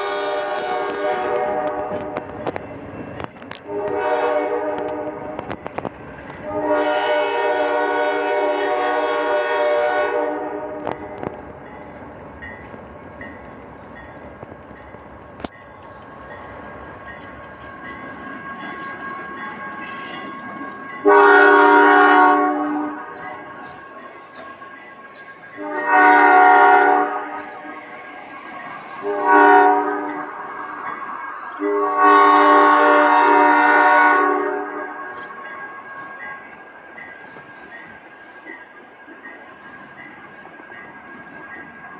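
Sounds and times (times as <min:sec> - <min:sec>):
locomotive air horn blasts: 0:00.0 - 0:02.3, 0:03.6 - 0:05.4, 0:06.4 - 0:11.3, 0:21.0 - 0:23.1, 0:25.6 - 0:28.0, 0:29.0 - 0:30.8, 0:31.6 - 0:35.1
passing train noise: 0:00.0 - 0:41.9.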